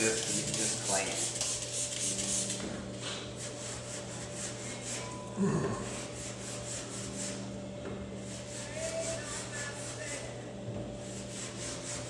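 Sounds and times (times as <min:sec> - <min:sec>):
clay bar rasping on car paint: 0:00.0 - 0:02.6, 0:05.9 - 0:07.5, 0:08.2 - 0:10.4, 0:11.0 - 0:12.0.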